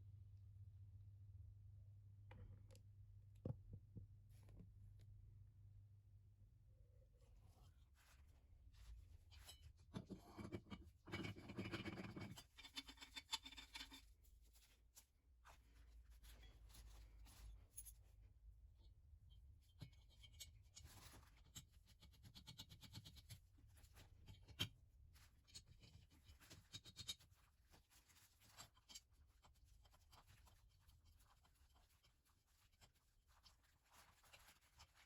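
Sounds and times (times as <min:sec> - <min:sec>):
faint scratching and rubbing: 0:07.2 - 0:18.2, 0:19.6 - 0:35.0.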